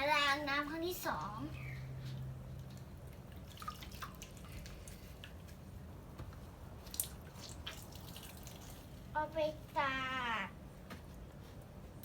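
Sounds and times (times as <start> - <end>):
water splashing in a basin: 2.5 - 5.4, 6.8 - 9.0.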